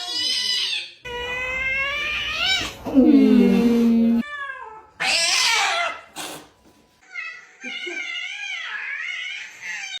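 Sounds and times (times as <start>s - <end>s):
cat meowing: 0.0s - 2.9s.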